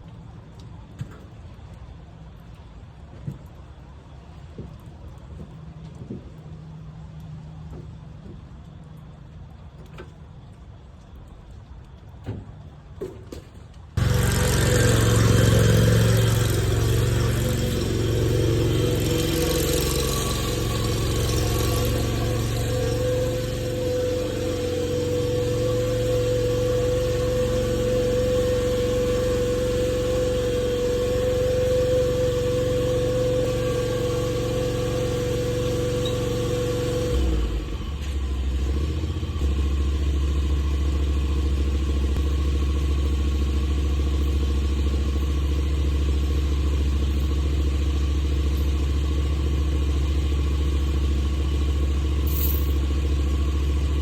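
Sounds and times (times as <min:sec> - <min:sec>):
car engine running: 0:14.0 - 0:54.0.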